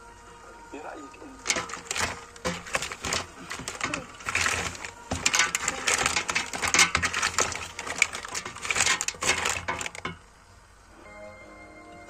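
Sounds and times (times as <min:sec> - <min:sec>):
rapid irregular clicking: 0:01.4 - 0:10.3
rustling: 0:01.4 - 0:10.3.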